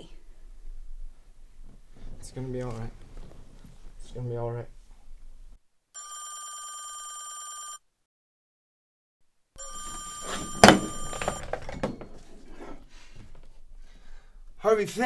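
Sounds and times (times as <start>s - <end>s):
telephone ringing: 6.0s - 7.9s, 9.6s - 12.1s.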